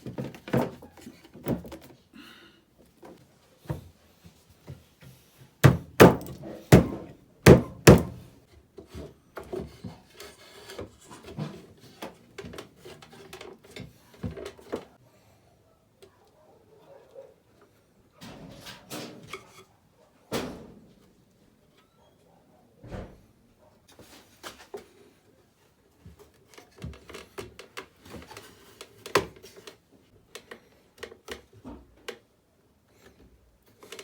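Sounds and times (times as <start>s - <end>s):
wooden knocks and thunks: 5.6s - 8.2s.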